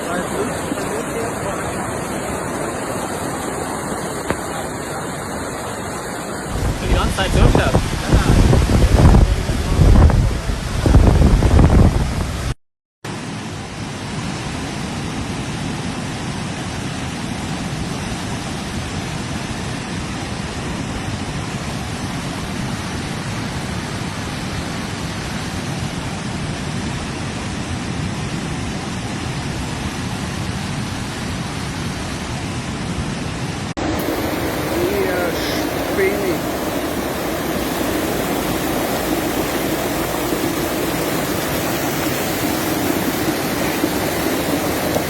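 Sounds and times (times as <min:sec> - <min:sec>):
floodwater rushing: 0:00.0 - 0:45.0
wind buffeting microphone: 0:06.4 - 0:12.5, 0:30.5 - 0:45.0.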